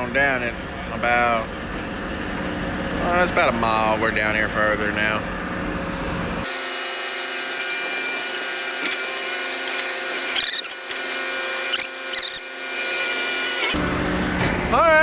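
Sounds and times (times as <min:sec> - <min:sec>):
drone propeller motors whining: 0:07.5 - 0:14.4.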